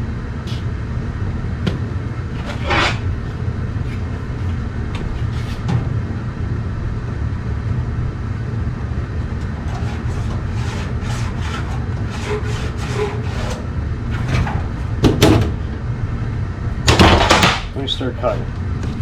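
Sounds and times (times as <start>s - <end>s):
steady low hum: 0.0s - 19.0s
scraping strokes on sheet metal: 2.3s - 3.1s, 9.6s - 13.7s.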